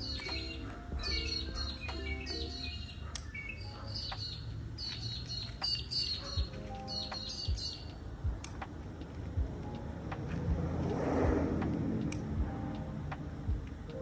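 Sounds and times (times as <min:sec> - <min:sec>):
birds chirping: 0:00.0 - 0:08.1
soft background music: 0:00.0 - 0:14.0
soft low thumps: 0:08.2 - 0:08.7, 0:09.4 - 0:11.7.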